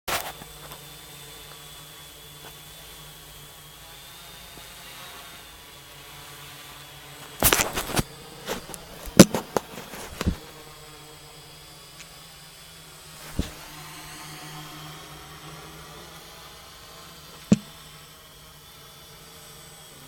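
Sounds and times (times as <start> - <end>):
quadcopter propellers humming: 0.1 - 20.0
sharp knocks: 17.5 - 17.7.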